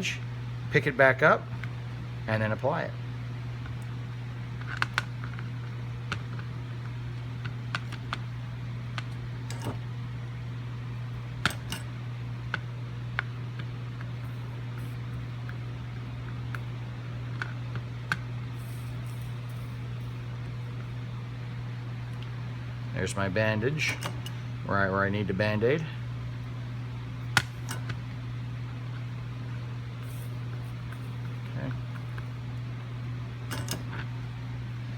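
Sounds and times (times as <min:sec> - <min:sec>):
steady low hum: 0:00.0 - 0:34.9
soldering iron clicking and tapping: 0:27.4 - 0:28.0.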